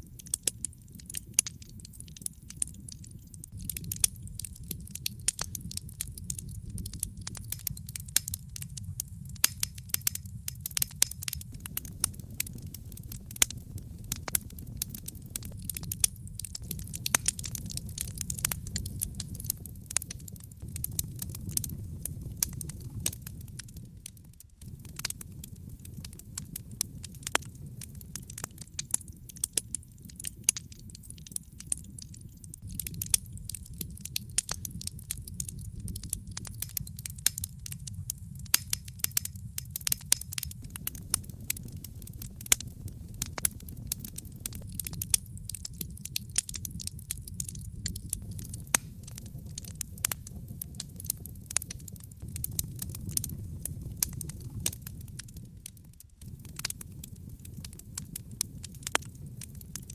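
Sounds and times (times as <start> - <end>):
campfire crackling: 0.0 - 59.9.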